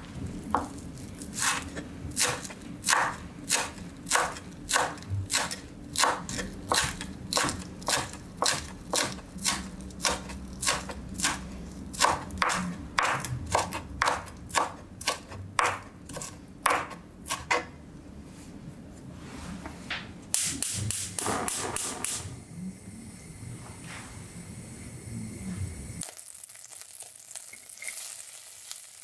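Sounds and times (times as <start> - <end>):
knife chopping on wooden board: 1.4 - 17.7.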